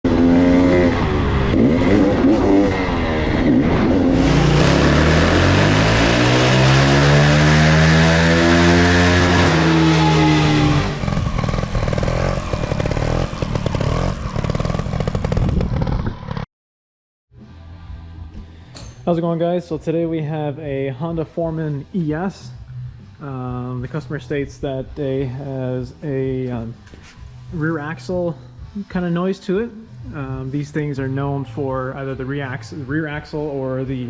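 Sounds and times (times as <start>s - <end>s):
atv engine revving: 0.1s - 16.4s.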